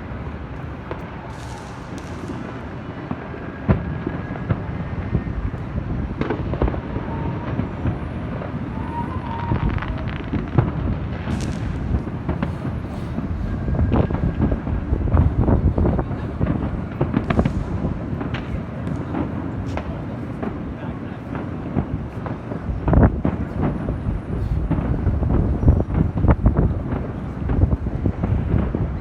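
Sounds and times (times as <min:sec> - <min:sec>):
fireworks popping and banging: 0:00.1 - 0:29.0
low rumbling booms: 0:09.6 - 0:19.4, 0:21.8 - 0:29.0.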